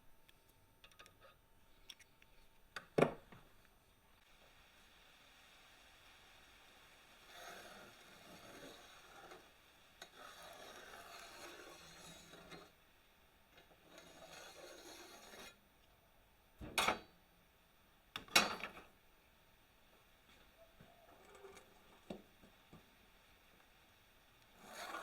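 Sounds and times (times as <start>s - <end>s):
rasping hand strokes on workpiece: 7.3s - 12.8s, 13.8s - 15.6s, 24.6s - 25.0s.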